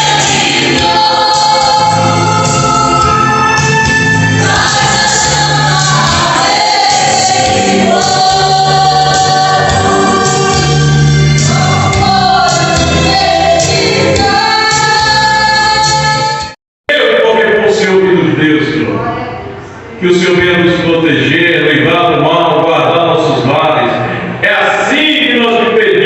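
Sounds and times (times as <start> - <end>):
choir singing held notes: 0.0 - 16.6
instrumental backing: 0.0 - 16.6.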